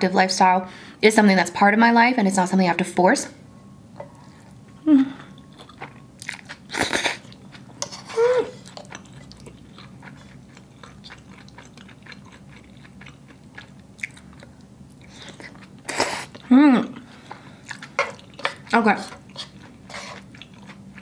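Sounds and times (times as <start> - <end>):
closed-mouth hums: 4.1 - 6.0
chewing with wet mouth clicks: 8.6 - 16.5, 19.3 - 21.0.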